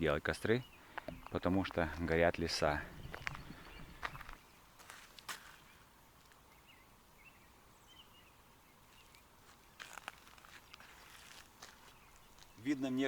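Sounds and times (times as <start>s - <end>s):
faint bird chirps: 2.4s - 4.7s, 5.4s - 9.9s, 10.6s - 13.0s.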